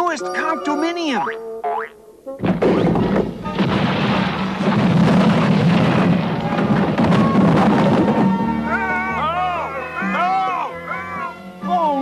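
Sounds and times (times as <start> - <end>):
cartoon building collapse crash: 2.4 - 8.6
debris clattering: 2.4 - 8.7
heavy impacts: 2.4 - 8.7.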